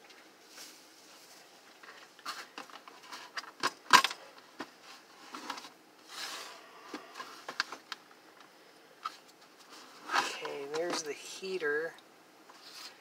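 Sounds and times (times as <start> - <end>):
scraping rustle: 12.5 - 13.0.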